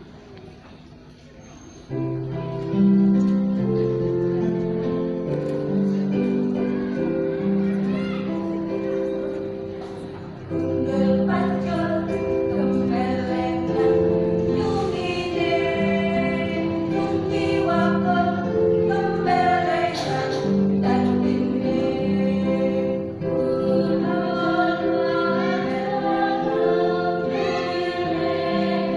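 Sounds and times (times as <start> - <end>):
instrumental accompaniment: 1.8 - 28.9
women's choir singing: 10.4 - 28.9.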